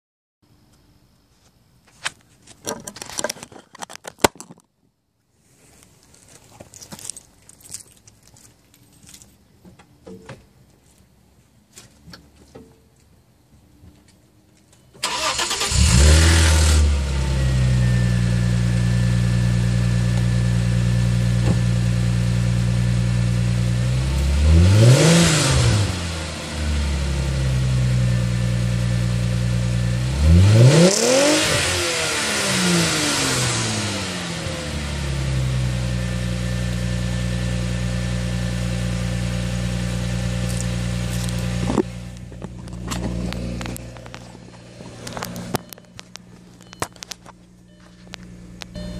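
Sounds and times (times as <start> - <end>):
car engine starting and idling: 14.9 - 48.9
car engine revving: 15.0 - 20.1, 23.2 - 27.4, 29.9 - 36.0.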